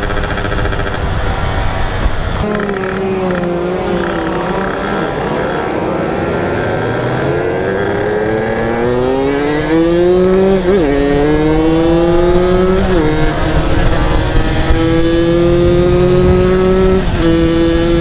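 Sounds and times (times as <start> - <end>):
two-stroke motorcycle engine running: 0.0 - 5.5.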